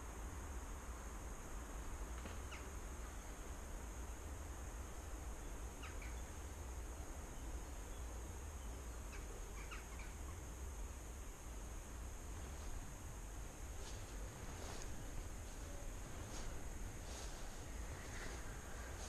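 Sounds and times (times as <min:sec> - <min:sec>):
low rumble and hiss: 0:00.0 - 0:19.0
bird chirps: 0:07.4 - 0:10.4.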